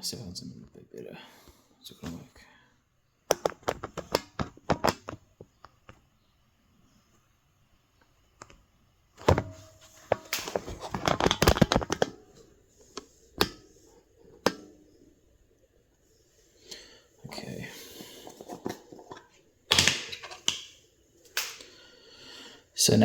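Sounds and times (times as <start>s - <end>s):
small clicks and knocks: 3.3s - 6.1s, 9.2s - 13.7s.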